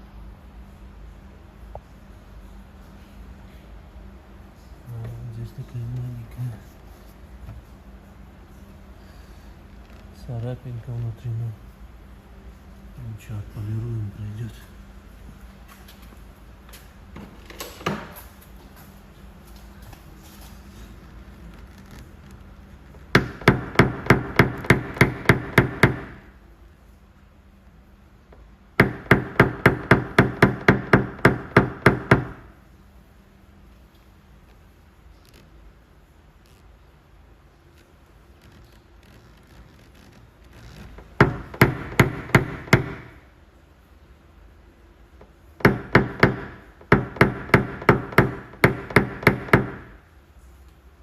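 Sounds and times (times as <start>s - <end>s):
hammer tapping car door panel: 23.2s - 26.2s, 28.8s - 32.4s, 41.2s - 43.2s, 45.6s - 49.9s.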